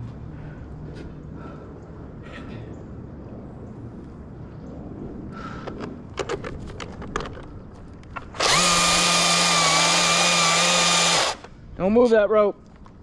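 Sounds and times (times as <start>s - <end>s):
power saw motor running: 8.3s - 11.5s.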